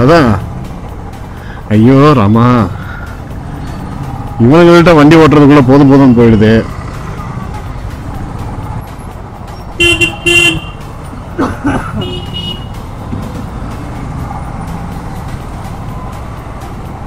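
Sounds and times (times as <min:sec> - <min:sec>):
vehicle horns honking: 0:09.8 - 0:10.9, 0:11.9 - 0:12.8.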